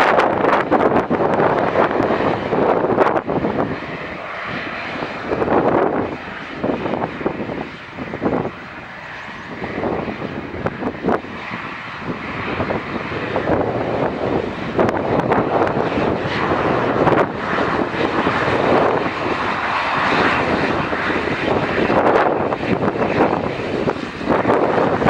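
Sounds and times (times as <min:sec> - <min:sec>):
turboprop engines at takeoff: 0:00.0 - 0:25.0
wind buffeting microphone: 0:00.0 - 0:25.0.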